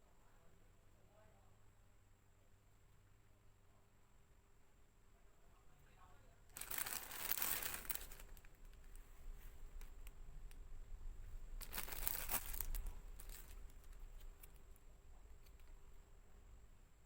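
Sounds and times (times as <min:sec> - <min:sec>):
packaging crinkling and rustling: 0:06.5 - 0:10.1, 0:11.6 - 0:14.6.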